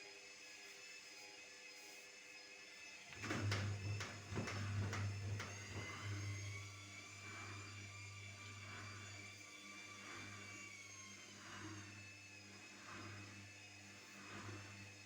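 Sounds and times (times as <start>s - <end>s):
washing machine hum: 3.1s - 15.0s
washing machine knocks: 3.2s - 6.5s.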